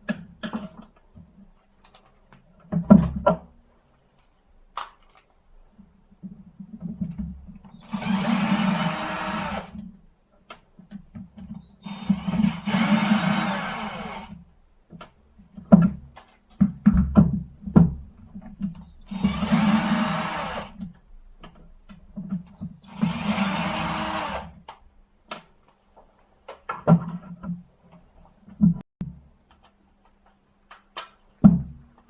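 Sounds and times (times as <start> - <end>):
impact wrench motor whirring: 7.8 - 9.8, 11.8 - 14.3, 19.1 - 20.8, 22.9 - 24.5.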